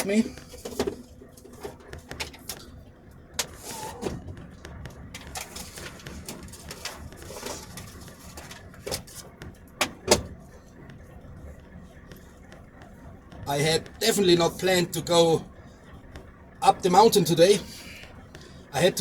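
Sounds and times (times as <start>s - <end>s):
knocks and clicks in vehicle cab: 0.0s - 14.3s, 15.6s - 16.6s
faint low rumble: 0.0s - 19.0s.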